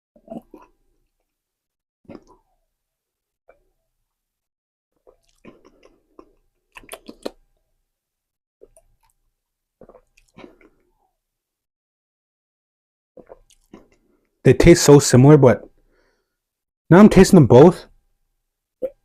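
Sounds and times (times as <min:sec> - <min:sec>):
person sipping and swallowing: 0:00.2 - 0:01.3, 0:02.1 - 0:02.6, 0:05.0 - 0:07.4, 0:08.6 - 0:09.2, 0:09.8 - 0:11.0, 0:13.2 - 0:14.1
sharp mouth clicks: 0:06.7 - 0:07.4.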